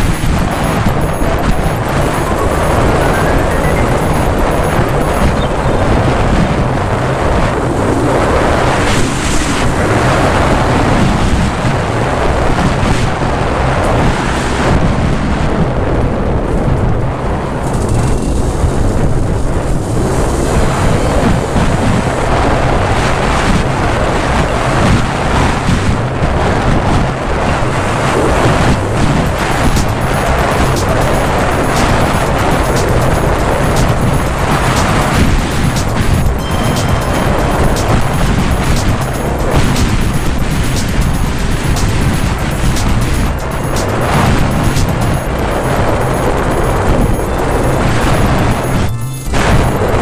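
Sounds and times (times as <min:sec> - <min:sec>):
motorcycle engine running: 0:00.0 - 0:06.8
wind buffeting microphone: 0:00.0 - 0:50.0.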